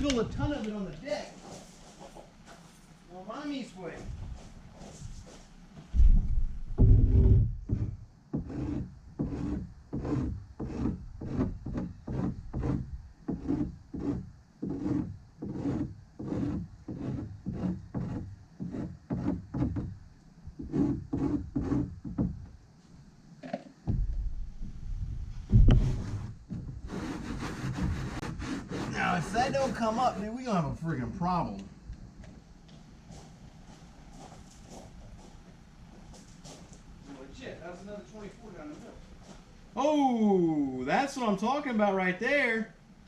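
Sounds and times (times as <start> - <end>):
louder scuffing: 1.2 - 3.0, 3.9 - 7.2, 32.2 - 37.2, 38.6 - 39.5
stick scraping in mixing cup: 7.7 - 20.0, 20.6 - 22.2, 25.7 - 30.5.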